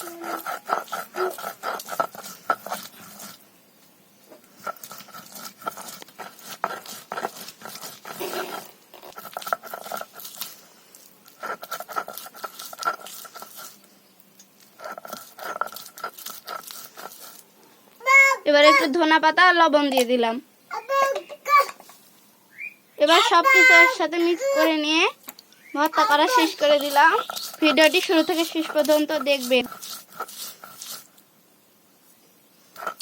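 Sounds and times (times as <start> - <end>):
food mashed by hand: 0.0 - 3.4, 4.4 - 10.6, 11.3 - 13.8, 14.4 - 17.4, 25.8 - 31.1, 32.8 - 33.0.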